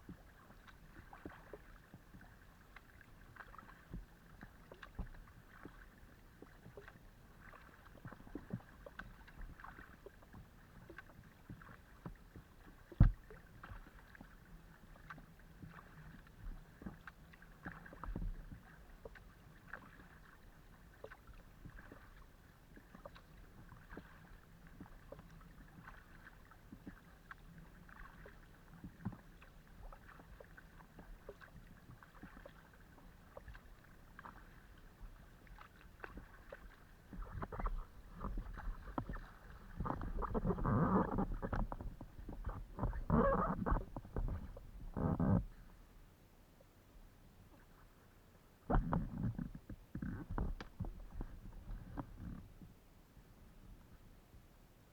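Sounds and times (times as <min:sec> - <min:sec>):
paddle strokes splashing water: 0:00.0 - 0:45.9, 0:47.4 - 0:52.6
knocks on kayak hull: 0:13.0 - 0:13.2.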